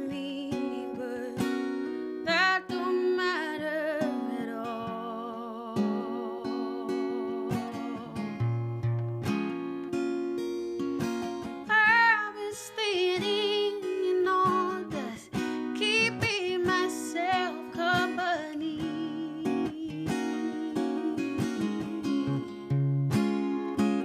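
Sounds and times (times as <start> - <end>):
woman singing with vibrato: 0.0 - 1.6, 2.2 - 8.5, 11.7 - 22.5
acoustic guitar: 0.0 - 24.0.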